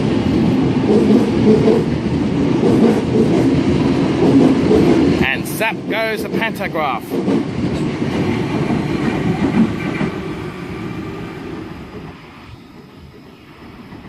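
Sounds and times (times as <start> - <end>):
electric train wheels on rails: 0.0 - 14.0.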